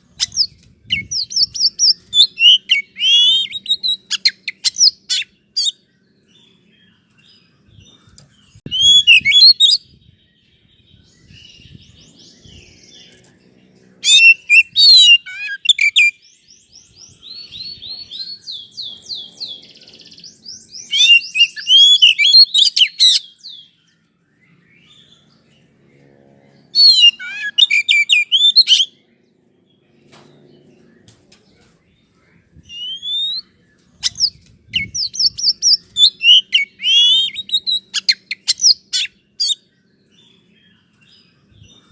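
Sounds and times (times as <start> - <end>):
songbird whistling and chattering: 0.0 - 5.8, 8.6 - 10.1, 14.0 - 23.8, 26.8 - 28.9, 32.6 - 39.6.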